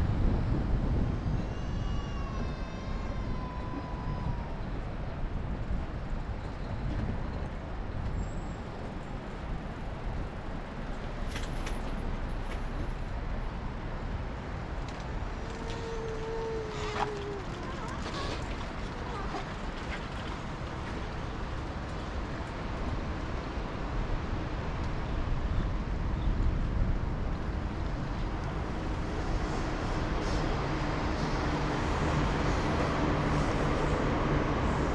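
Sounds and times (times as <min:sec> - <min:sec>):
road traffic: 0:04.6 - 0:25.6, 0:27.3 - 0:34.9.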